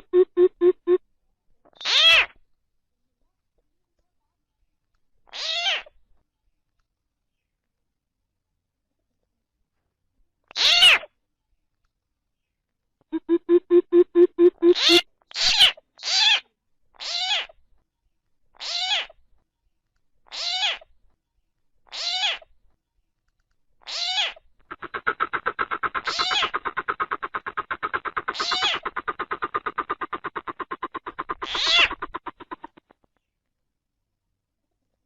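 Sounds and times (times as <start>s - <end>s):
frog pulsing trill: 0.0s - 1.0s, 13.2s - 15.0s, 24.7s - 32.9s
bird downward-sliding call: 13.2s - 15.0s, 24.7s - 32.8s.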